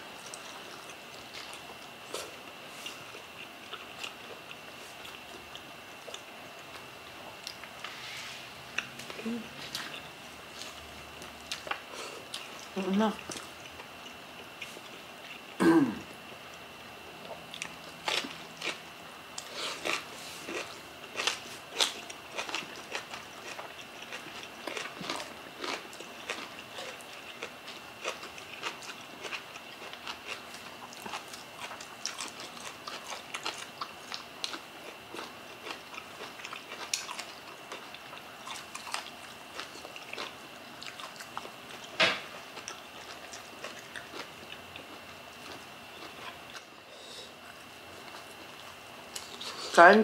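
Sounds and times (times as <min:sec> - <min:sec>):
chewing and wet mouth sounds: 0:00.2 - 0:08.0, 0:08.7 - 0:15.6, 0:16.2 - 0:18.8, 0:19.4 - 0:46.8, 0:47.4 - 0:49.8.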